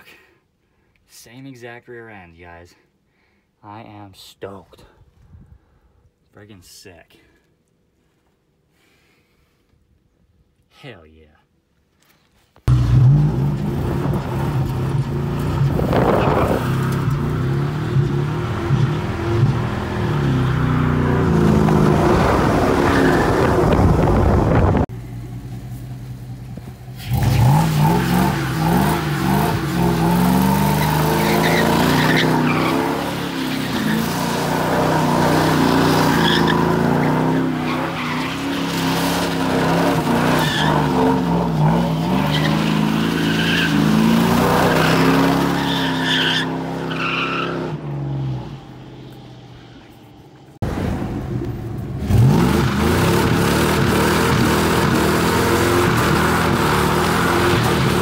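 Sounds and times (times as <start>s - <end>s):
tires spinning and squealing: 12.7s - 24.8s, 26.9s - 49.9s, 52.0s - 58.0s
truck engine revving: 12.7s - 24.9s, 27.0s - 48.4s, 50.6s - 58.0s.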